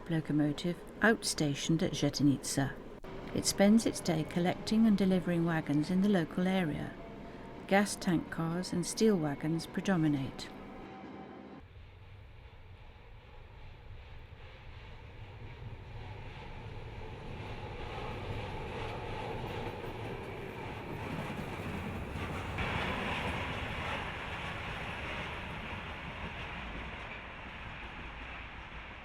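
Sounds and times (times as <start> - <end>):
freight train rumbling past: 0.0 - 29.0.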